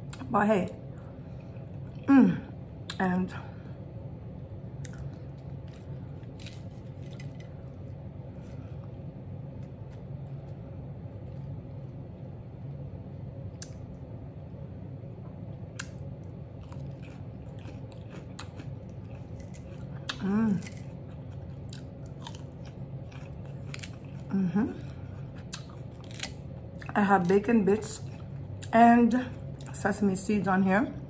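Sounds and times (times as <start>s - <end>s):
low hum: 0.0s - 31.0s
chewing food: 4.8s - 12.0s, 15.3s - 30.0s.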